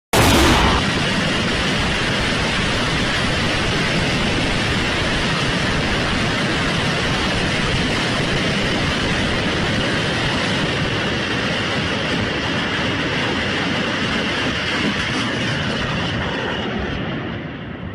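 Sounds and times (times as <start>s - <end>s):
loud rushing noise: 0.1s - 3.5s.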